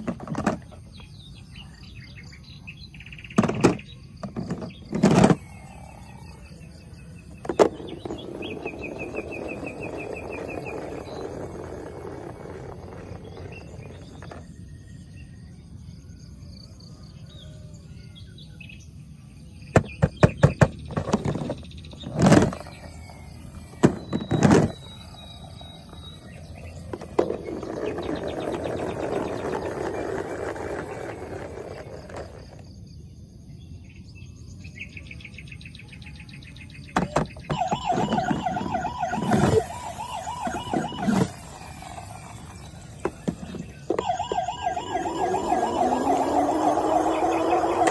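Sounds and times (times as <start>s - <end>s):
toy electronic siren wail: 5.1s - 14.5s, 22.2s - 32.6s, 37.0s - 47.9s.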